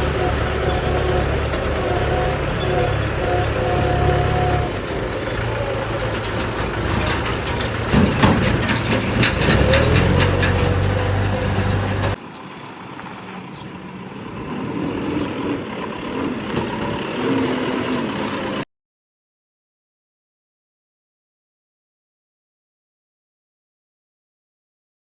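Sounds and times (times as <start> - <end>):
clanks and knocks: 0.0 - 12.2
diesel engine running: 0.0 - 12.2, 13.4 - 18.6.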